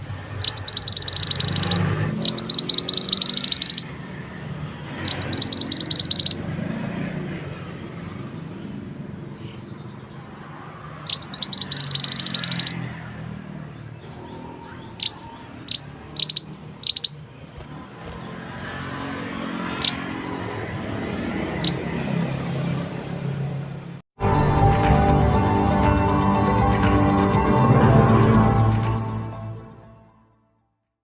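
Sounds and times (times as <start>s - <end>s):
songbird trilling and chirping: 0.3s - 4.2s, 4.9s - 6.5s, 9.4s - 18.7s, 19.4s - 20.3s, 21.4s - 21.9s.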